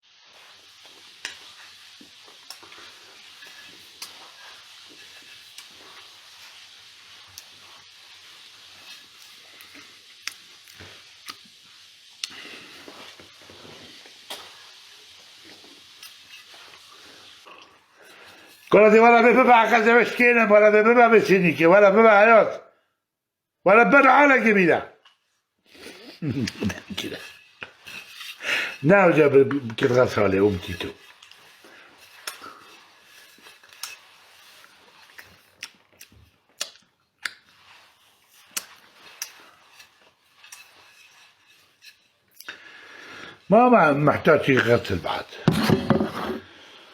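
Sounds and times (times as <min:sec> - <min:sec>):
steady low hiss: 0:00.0 - 0:22.8, 0:23.6 - 0:46.9.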